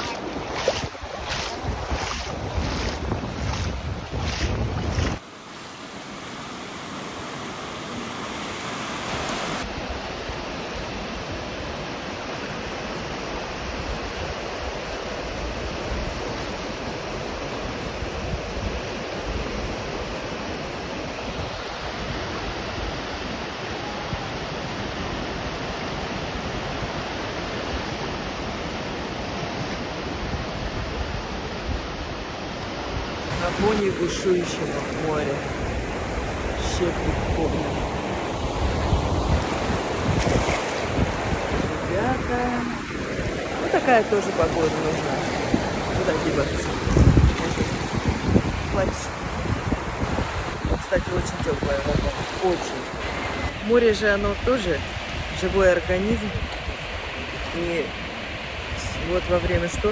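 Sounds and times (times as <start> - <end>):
wind buffeting microphone: 0.0 - 5.2, 35.1 - 59.9
waves breaking: 0.0 - 59.9.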